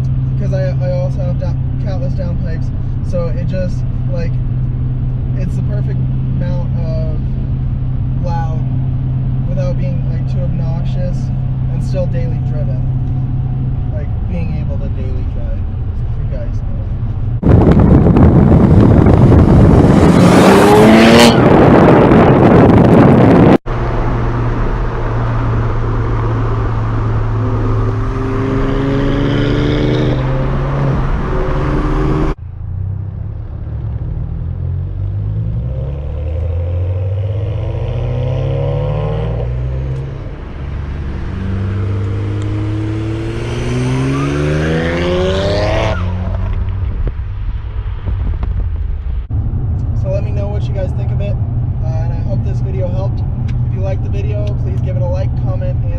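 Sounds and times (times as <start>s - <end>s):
car engine accelerating hard: 5.0s - 32.4s, 33.4s - 47.2s.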